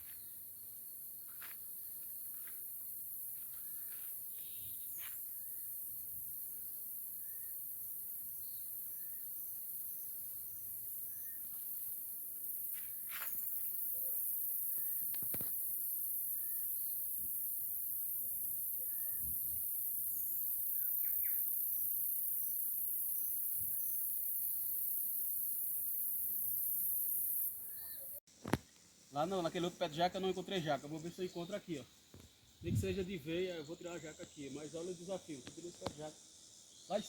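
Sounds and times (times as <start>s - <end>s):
insects buzzing: 0.0s - 37.0s
bird chirping: 20.7s - 21.6s.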